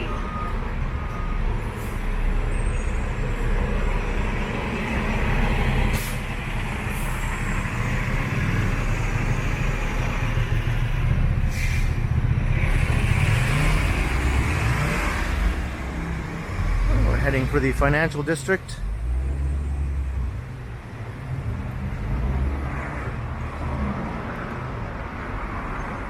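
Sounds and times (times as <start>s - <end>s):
heavy vehicle engine rumbling: 0.0s - 26.0s
air brake hisses: 5.9s - 6.2s, 11.5s - 12.0s.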